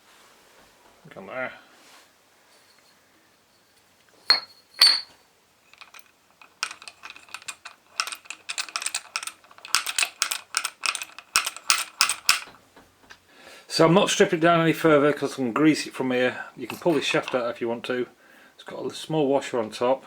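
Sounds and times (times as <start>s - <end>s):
metallic clinks: 4.3s - 12.5s
metal parts clicking and rattling: 5.7s - 12.6s, 16.7s - 17.5s.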